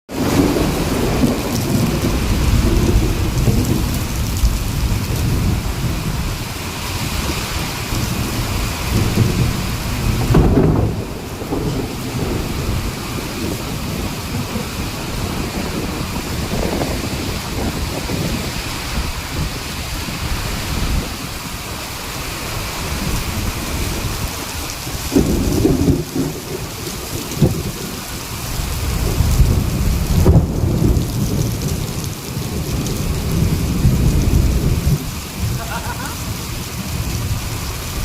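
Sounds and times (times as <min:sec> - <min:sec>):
steady rain falling: 0:00.1 - 0:38.0
thunder rumbling: 0:00.1 - 0:38.0.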